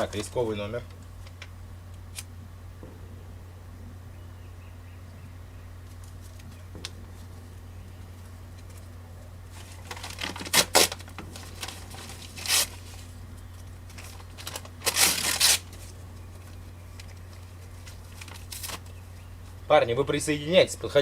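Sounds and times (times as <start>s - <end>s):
low electrical hum: 0.0s - 21.0s
rasping tearing noises: 9.5s - 19.0s.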